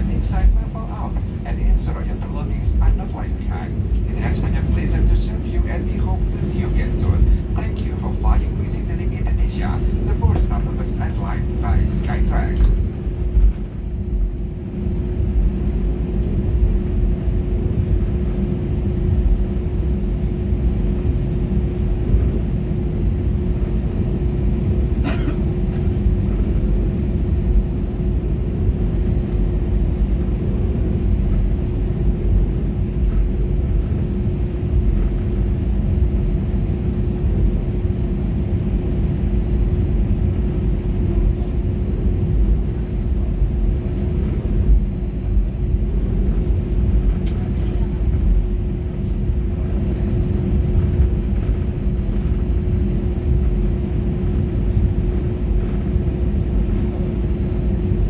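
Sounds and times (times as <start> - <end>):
airplane cabin low rumble: 0.0 - 58.0
steady hum: 0.0 - 58.0.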